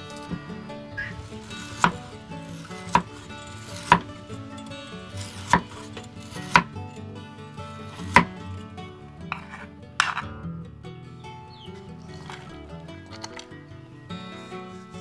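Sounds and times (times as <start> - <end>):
soft background music: 0.0 - 15.0
knife slicing sausage: 1.2 - 4.3, 5.1 - 6.7, 7.9 - 8.4, 9.3 - 10.2.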